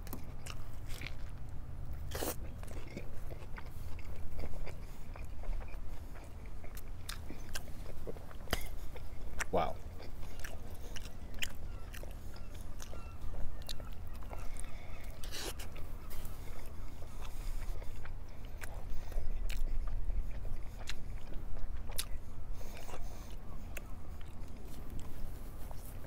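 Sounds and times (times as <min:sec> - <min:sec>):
man chewing and biting: 0:00.0 - 0:26.0.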